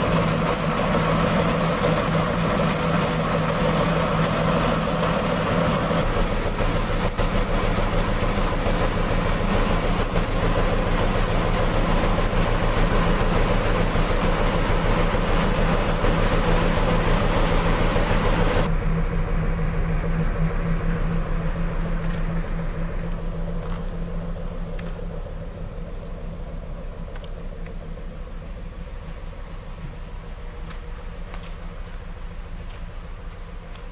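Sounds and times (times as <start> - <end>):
milling machine hiss: 0.0 - 18.7
diesel engine hum: 0.0 - 33.9.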